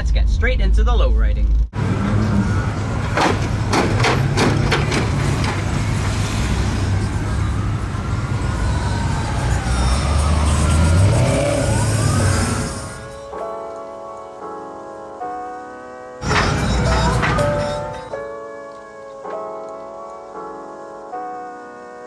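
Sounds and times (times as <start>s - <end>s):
sharp knocks: 1.8s - 9.9s
car engines rumbling: 1.8s - 13.4s, 16.2s - 18.2s
street noise: 1.8s - 13.6s, 16.2s - 18.4s
music: 13.2s - 22.0s.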